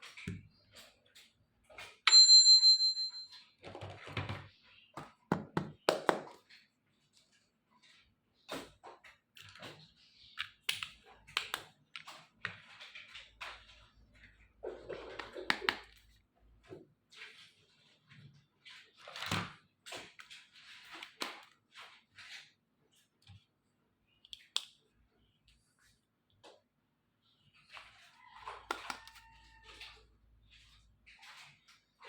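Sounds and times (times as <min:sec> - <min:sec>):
bright ding: 0:02.1 - 0:03.3.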